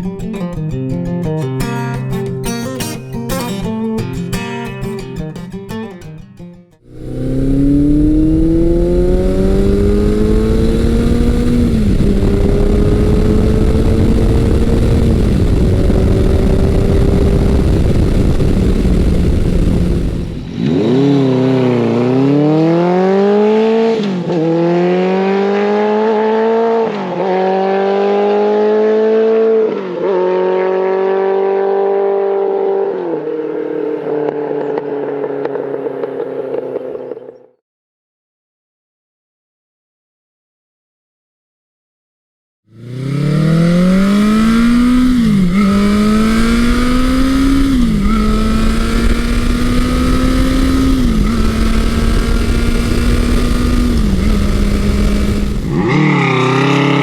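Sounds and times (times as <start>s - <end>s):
motorcycle engine accelerating: 6.8s - 37.6s, 42.7s - 57.0s
dense low rumble: 6.9s - 20.6s, 51.0s - 55.8s.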